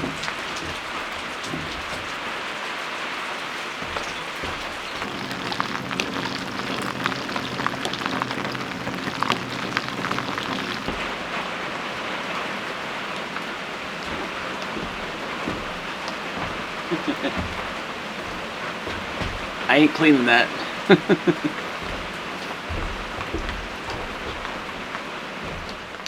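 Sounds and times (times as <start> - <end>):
falling water hissing: 0.0 - 26.0
sharp taps: 3.8 - 11.2, 13.9 - 26.0.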